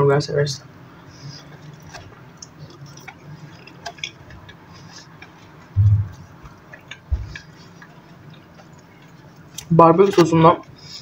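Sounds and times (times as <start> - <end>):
soft chewing: 0.9 - 11.0
wet mouth clicks: 1.6 - 9.7
short low thumps: 5.8 - 6.2.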